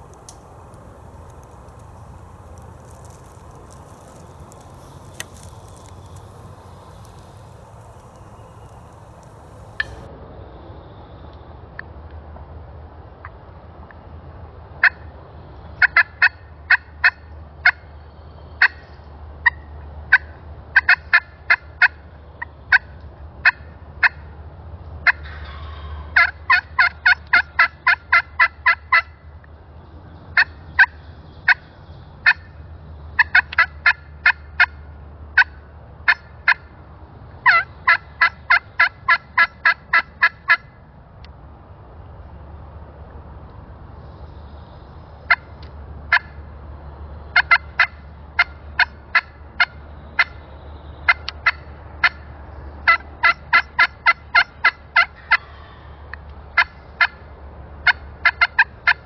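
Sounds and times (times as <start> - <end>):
wild turkey clucking: 0.0 - 10.1.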